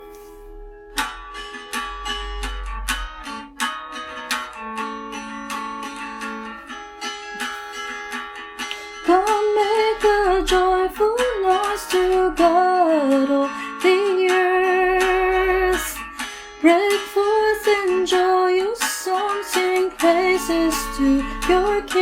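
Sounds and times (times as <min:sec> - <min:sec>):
acoustic guitar chords: 0:00.0 - 0:22.0
person singing: 0:09.0 - 0:22.0.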